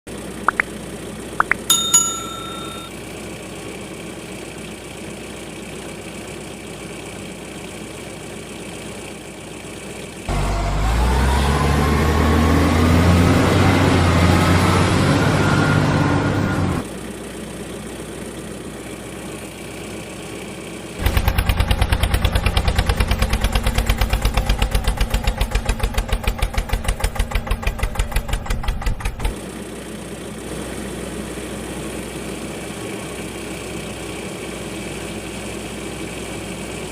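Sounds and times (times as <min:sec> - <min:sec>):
truck engine with rising whine: 0:00.1 - 0:36.9
short beep: 0:01.4 - 0:02.9.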